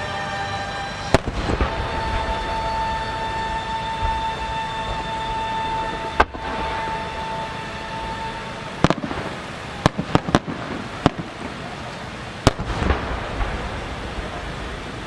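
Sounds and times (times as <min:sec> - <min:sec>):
steady high tone: 0:00.0 - 0:09.0
firework crackle: 0:00.0 - 0:15.0.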